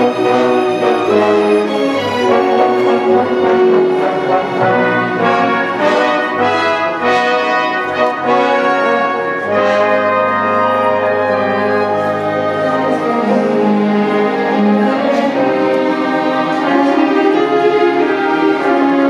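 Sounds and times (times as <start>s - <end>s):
brass sustained chords: 0.0s - 19.0s
orchestra playing: 0.0s - 19.0s.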